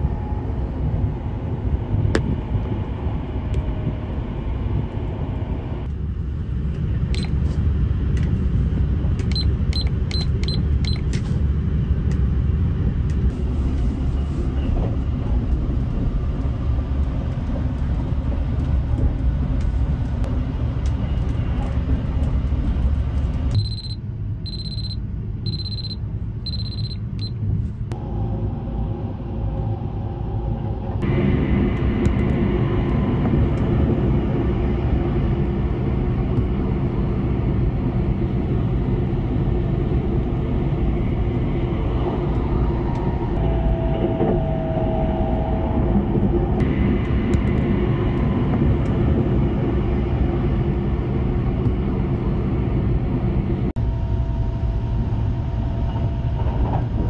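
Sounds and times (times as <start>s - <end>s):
train rumbling: 0.0s - 57.0s
high electronic beeps: 23.6s - 27.4s.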